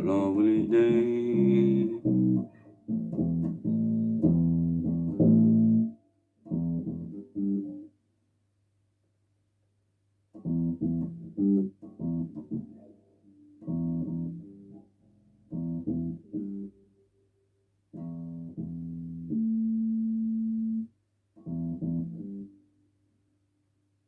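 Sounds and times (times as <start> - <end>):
electric bass guitar plucked notes: 0.0 - 5.9, 6.5 - 7.6, 10.4 - 12.6, 15.5 - 16.7.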